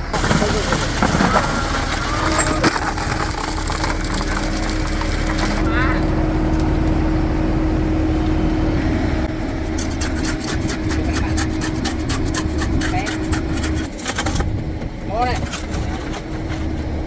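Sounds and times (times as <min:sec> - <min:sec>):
machine engine humming: 0:00.0 - 0:17.0
scraping and clicking strokes: 0:09.6 - 0:14.5, 0:15.2 - 0:16.9.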